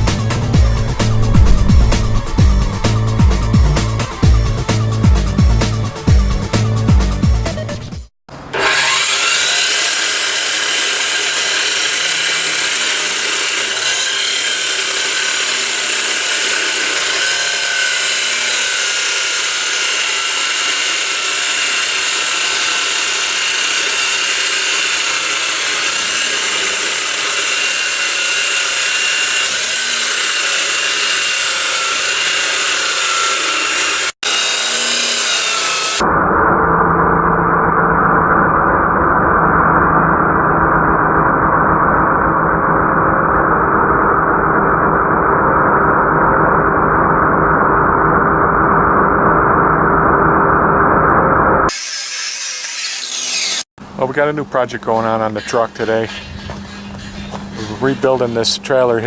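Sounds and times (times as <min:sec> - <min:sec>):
dull muffled sound: 0:00.0 - 0:04.9
power tool on steel: 0:08.4 - 0:36.0, 0:51.7 - 0:53.7.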